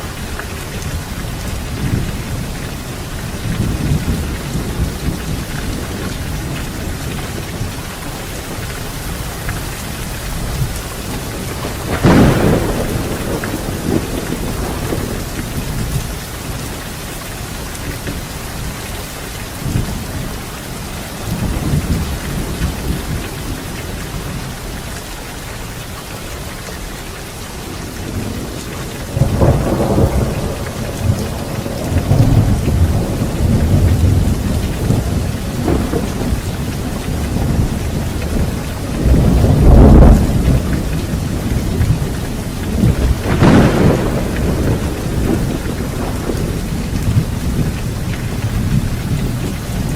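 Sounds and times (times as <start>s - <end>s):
thunder rumbling: 0.0s - 18.8s, 19.5s - 24.8s, 27.7s - 49.9s
heavy rain: 0.0s - 49.9s
sharp thunder crack: 11.6s - 15.6s, 29.2s - 37.8s, 42.7s - 47.3s.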